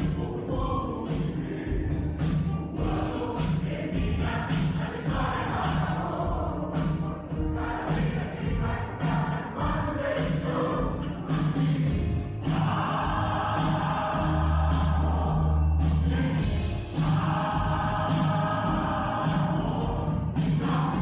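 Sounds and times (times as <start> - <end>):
instrumental accompaniment: 0.0 - 21.0
mixed choir singing: 0.0 - 21.0
rhythmic beat: 0.0 - 21.0.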